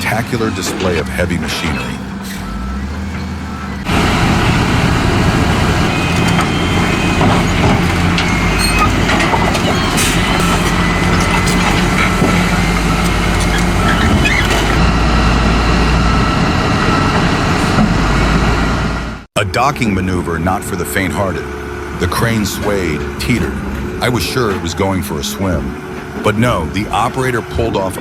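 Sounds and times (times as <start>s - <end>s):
knocks and clanks: 0.0s - 18.9s
heavy diesel machinery running: 0.0s - 19.3s, 20.1s - 28.0s.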